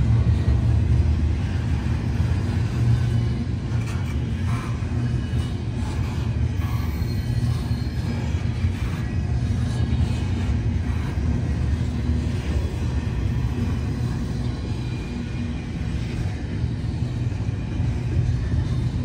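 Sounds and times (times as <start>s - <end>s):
freight train wheels rumbling: 0.0s - 19.0s
faint wheel squeals: 6.4s - 8.7s.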